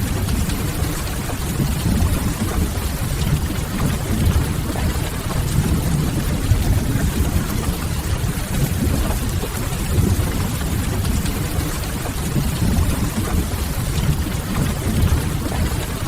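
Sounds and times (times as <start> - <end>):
steady rush of rain: 0.0 - 16.0.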